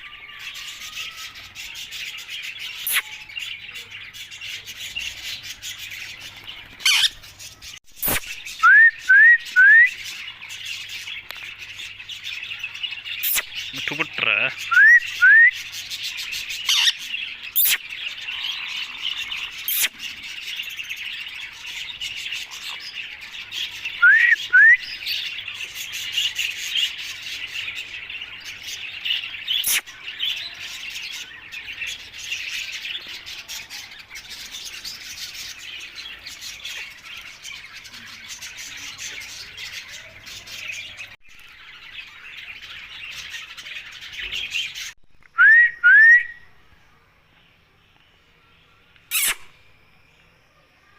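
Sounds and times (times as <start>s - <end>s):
parrot chirping and squawking: 2.7s - 3.3s, 6.8s - 8.4s, 16.5s - 20.1s, 29.5s - 30.0s, 49.1s - 49.5s.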